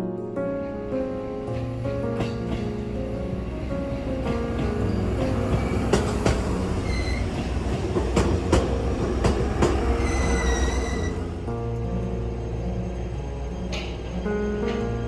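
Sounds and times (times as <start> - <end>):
train wheels clacking over joints: 4.3 - 11.2
high wheel squeal: 6.8 - 7.5, 9.8 - 11.4.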